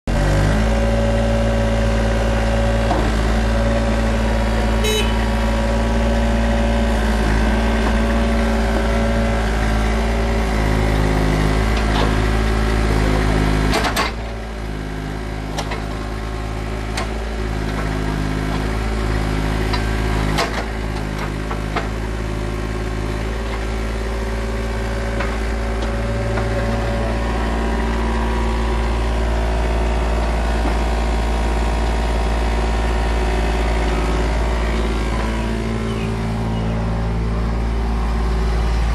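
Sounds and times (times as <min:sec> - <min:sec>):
diesel engine running: 0:00.1 - 0:38.9
sharp clicks and knocks: 0:13.7 - 0:14.2.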